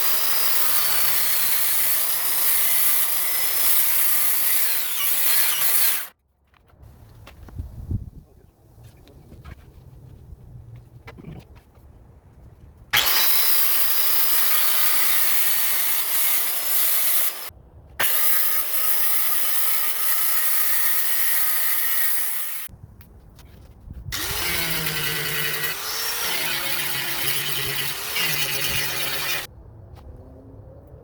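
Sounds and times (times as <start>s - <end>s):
power tool working on wood: 0.0s - 6.1s, 13.0s - 17.4s, 24.2s - 29.5s.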